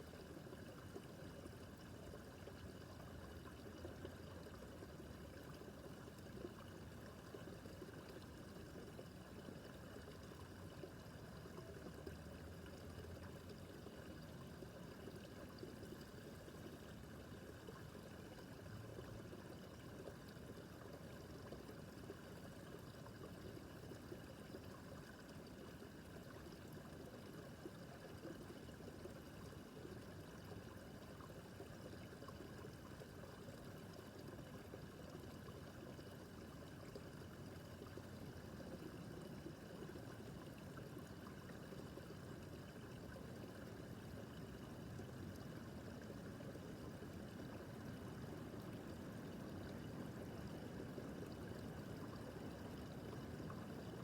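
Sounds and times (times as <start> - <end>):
brook babbling over stones: 0.0 - 54.0.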